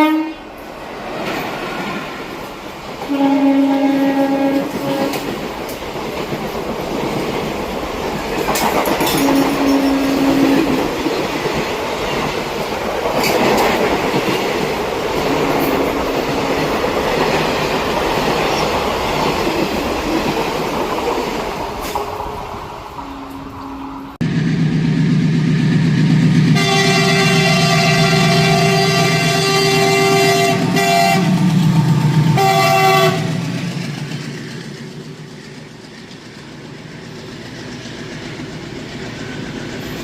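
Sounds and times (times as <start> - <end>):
locomotive horn: 0.0 - 0.5, 3.0 - 5.3, 9.1 - 10.8, 22.9 - 24.2, 26.5 - 33.4
train wheels clattering on rails: 1.0 - 22.5, 24.2 - 40.0.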